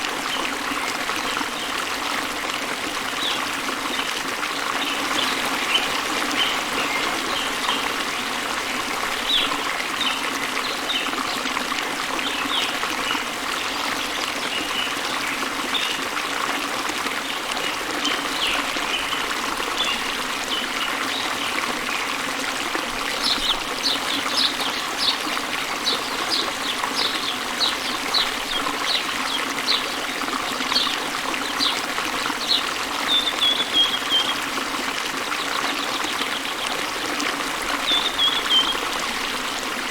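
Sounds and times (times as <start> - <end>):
waterfall spilling into river: 0.0 - 39.9
birds chirping: 4.8 - 8.0, 23.2 - 34.5, 37.8 - 39.4.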